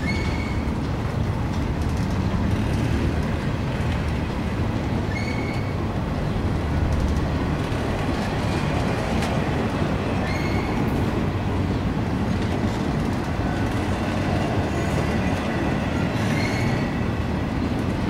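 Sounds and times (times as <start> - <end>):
high wheel squeal: 0.0 - 0.8, 5.0 - 5.8, 10.2 - 11.0, 16.1 - 17.1
steel wheels rumbling on rail: 0.0 - 18.0.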